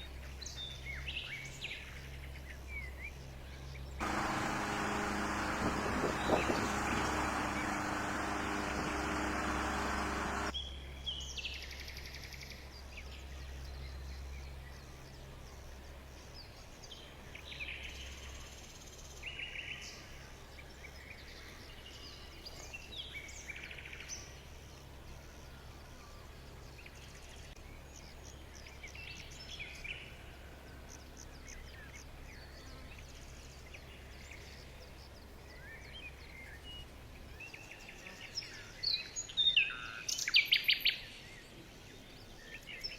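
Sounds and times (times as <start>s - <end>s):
small birds chirping: 3.6s - 10.6s
engine-like rumble: 4.0s - 10.6s.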